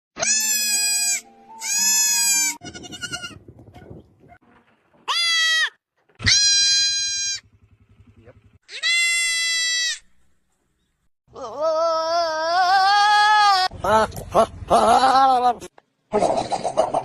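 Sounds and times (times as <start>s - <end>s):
goats bleating loudly: 0.2s - 3.4s, 5.1s - 7.4s, 8.7s - 10.1s, 11.4s - 15.5s.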